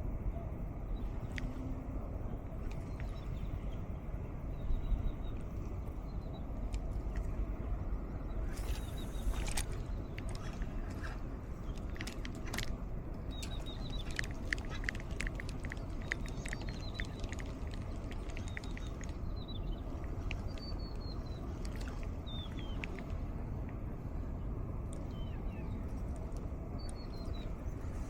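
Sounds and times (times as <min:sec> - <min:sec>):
breeze rumbling on microphone: 0:00.0 - 0:28.0
birds chirping and clicking: 0:08.6 - 0:23.8.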